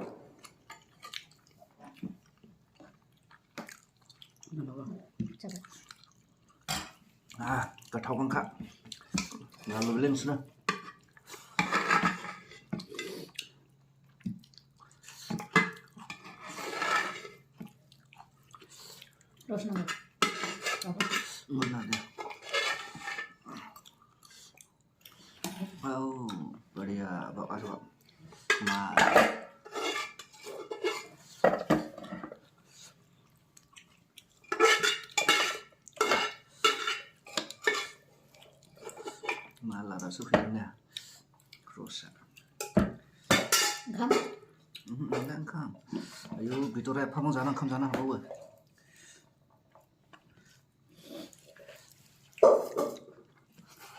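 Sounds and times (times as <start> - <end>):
wet chewing: 0.4 - 4.6, 5.3 - 8.0, 12.8 - 16.1, 17.5 - 19.5, 33.2 - 35.2
plates and cutlery clinking: 9.1 - 13.1, 15.3 - 17.5, 19.8 - 23.4, 28.4 - 32.4, 34.4 - 38.1, 42.6 - 44.5.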